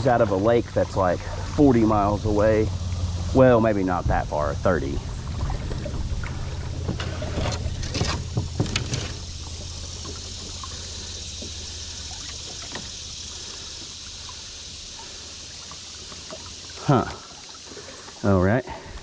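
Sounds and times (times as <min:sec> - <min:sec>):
river water rushing: 0:00.0 - 0:19.0
sharp knocks and clatters: 0:06.8 - 0:10.2.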